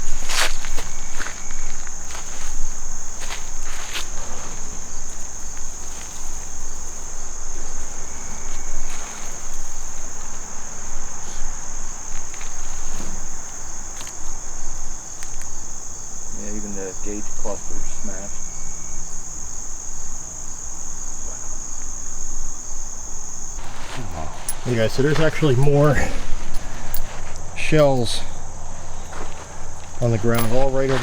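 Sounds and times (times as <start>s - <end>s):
crickets trilling: 0.0s - 31.0s
footsteps crunching: 0.0s - 31.0s.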